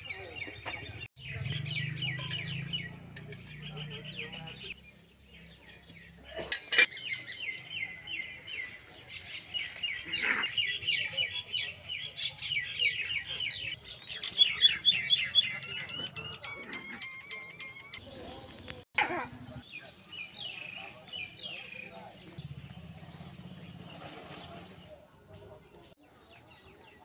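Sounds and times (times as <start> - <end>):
small birds chirping: 0.0 - 18.9, 19.5 - 27.0.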